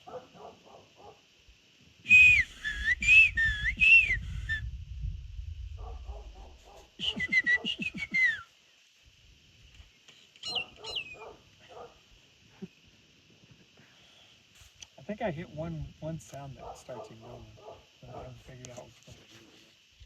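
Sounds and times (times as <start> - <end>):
man whistling bird-like calls: 2.1 - 4.7, 7.0 - 8.5, 10.4 - 11.2.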